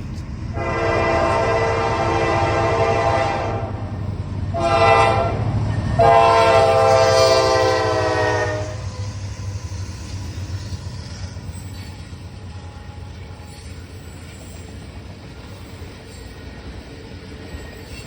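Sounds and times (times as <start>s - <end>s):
freight train rumbling: 0.0s - 18.0s
locomotive air horn blasts: 0.5s - 3.9s, 4.5s - 8.9s.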